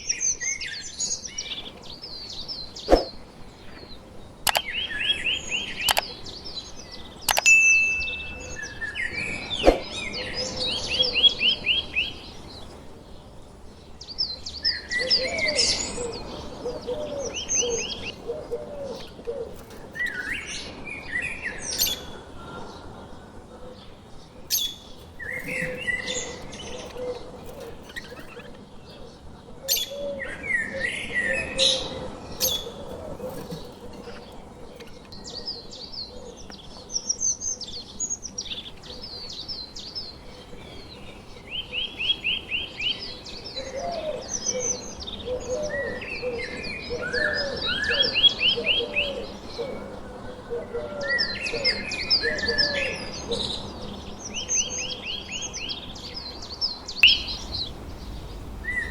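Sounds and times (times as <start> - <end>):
lower bird calls: 0.0 - 14.0, 14.6 - 36.8, 55.8 - 58.9
birds chirping high notes: 4.4 - 11.2, 19.0 - 23.0, 24.4 - 28.6, 57.0 - 58.9.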